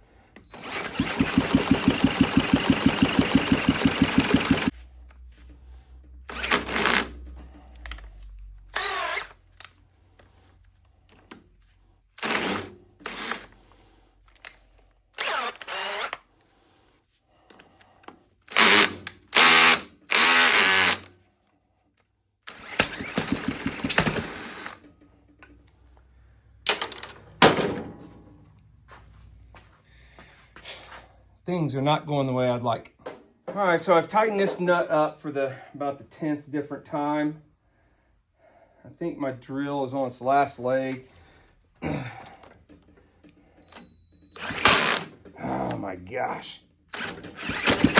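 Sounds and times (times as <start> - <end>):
cordless drill whining: 0.4 - 4.7, 6.3 - 7.2, 8.7 - 9.5, 12.2 - 13.7, 14.3 - 16.3, 18.5 - 21.1, 22.5 - 24.8, 43.6 - 45.2, 46.9 - 47.9
small engine running: 0.6 - 4.7, 22.6 - 24.8, 47.0 - 47.9.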